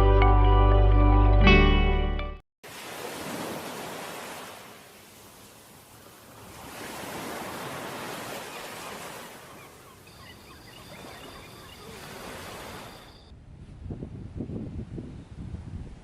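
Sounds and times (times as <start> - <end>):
wind and surf rushing: 2.7 - 16.0
faint chirps: 9.5 - 13.3.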